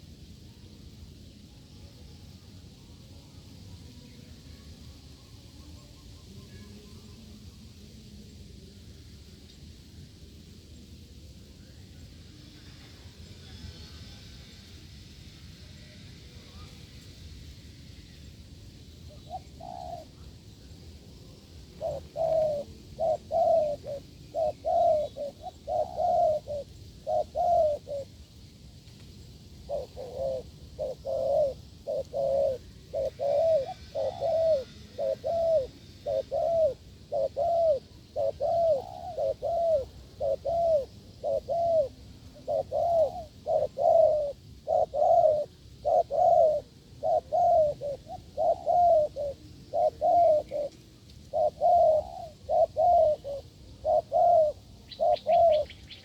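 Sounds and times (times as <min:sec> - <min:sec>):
doves cooing: 0:19.1 - 0:20.5, 0:21.3 - 0:28.2, 0:29.4 - 0:56.0.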